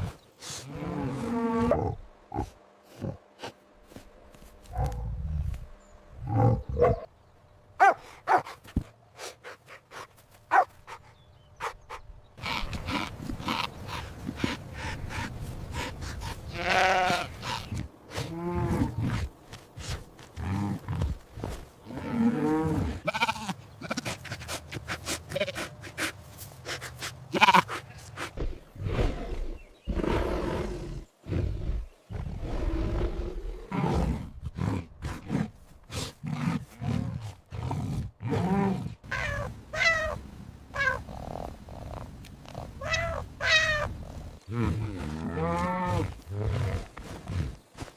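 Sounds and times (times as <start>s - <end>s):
sheep or goats bleating: 16.5s - 17.5s, 22.9s - 24.0s, 25.3s - 25.7s, 27.3s - 27.8s.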